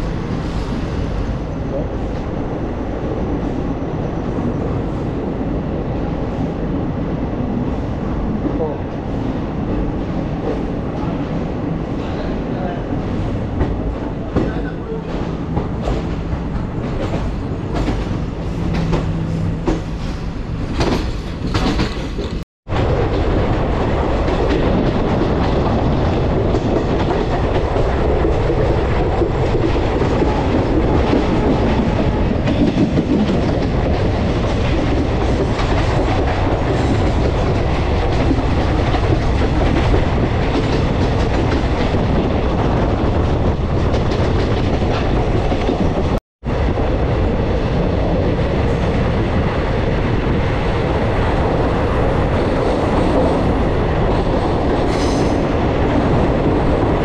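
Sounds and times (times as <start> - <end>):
train rumbling: 0.0 - 57.0
train wheels clattering over joints: 13.0 - 22.4.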